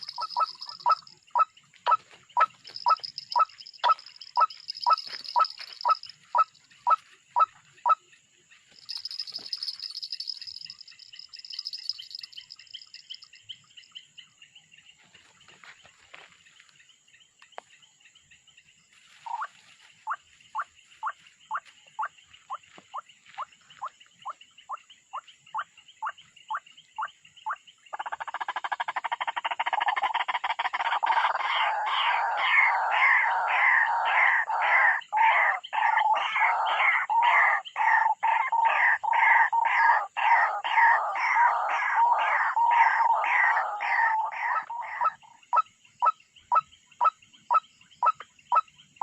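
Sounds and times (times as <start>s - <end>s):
bird calls with falling notes: 0.0s - 16.6s, 19.1s - 49.0s
dense chatter of bird calls: 0.0s - 49.0s.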